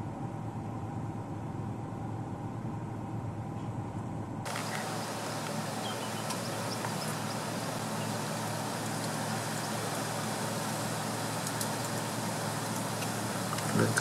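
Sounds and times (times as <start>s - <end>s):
broad even hiss: 4.5s - 14.0s
car engine idling: 4.5s - 14.0s.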